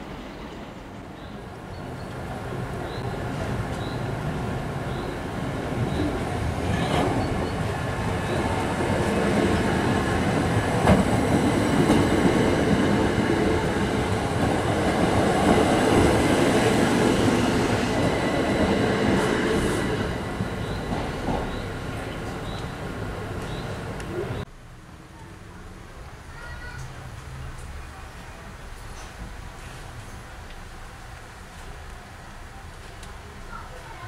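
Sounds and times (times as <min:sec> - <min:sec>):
train wheels rumbling on rail: 0:00.0 - 0:24.5.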